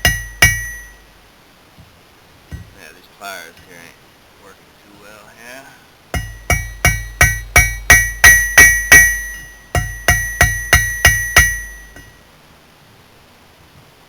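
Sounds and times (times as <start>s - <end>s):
hammer ringing on steel: 0.0s - 1.1s, 2.5s - 2.8s, 6.2s - 12.2s.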